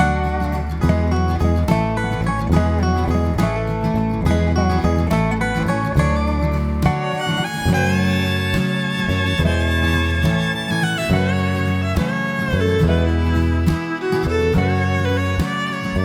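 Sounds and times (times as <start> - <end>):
guitar accompaniment: 0.0 - 16.0
steady bass line: 0.0 - 16.0
bowed fiddle melody: 6.0 - 16.0.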